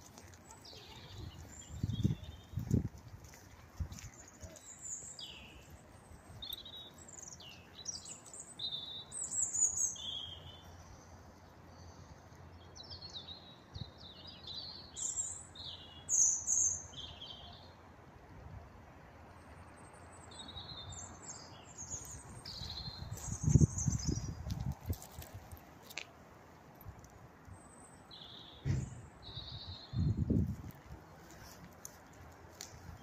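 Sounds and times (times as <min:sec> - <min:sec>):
small songbird singing: 0:00.4 - 0:02.8, 0:04.2 - 0:17.8, 0:20.0 - 0:25.2, 0:27.6 - 0:30.5.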